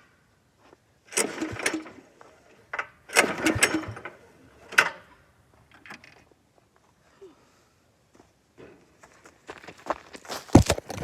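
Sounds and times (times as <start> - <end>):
tractor engine cranking: 1.1 - 6.2.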